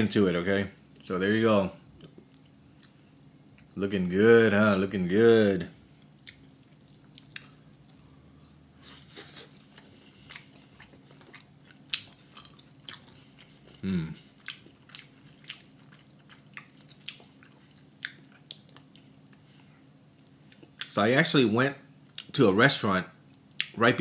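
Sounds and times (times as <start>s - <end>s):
person chewing with wet smacks: 1.9s - 3.8s, 5.8s - 8.1s, 8.8s - 21.0s, 22.1s - 22.4s
person humming: 13.8s - 14.2s.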